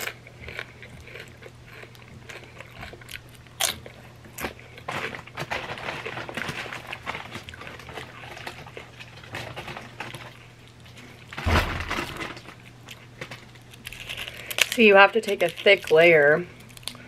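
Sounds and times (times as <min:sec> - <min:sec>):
chewing crunchy chips: 0:00.0 - 0:17.0
thump: 0:11.4 - 0:12.1.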